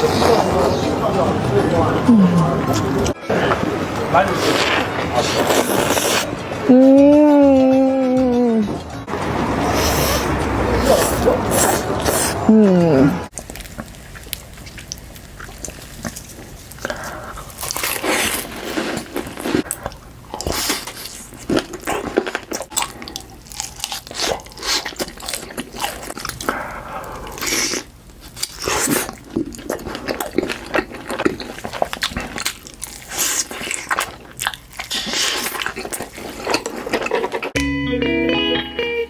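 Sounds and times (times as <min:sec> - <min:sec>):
crunching and chewing food: 0:04.0 - 0:06.3, 0:09.1 - 0:12.4, 0:13.3 - 0:37.6.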